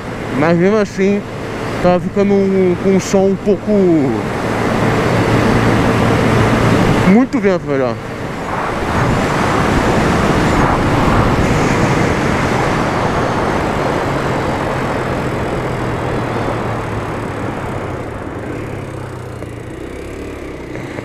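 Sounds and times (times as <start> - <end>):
motorcycle engine drone: 0.0 - 21.0
road noise: 0.0 - 21.0
wind rush: 4.2 - 18.9.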